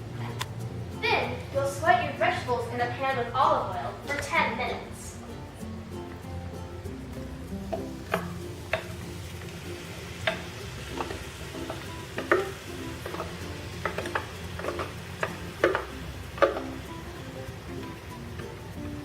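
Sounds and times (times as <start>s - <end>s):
vegetables sizzling in oil: 0.0s - 19.0s
utensil scraping a pan: 7.6s - 17.1s.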